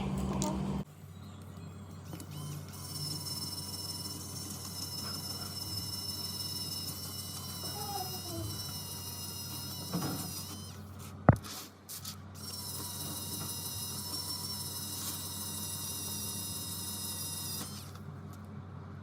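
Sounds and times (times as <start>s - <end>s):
low equipment hum: 0.0s - 19.0s.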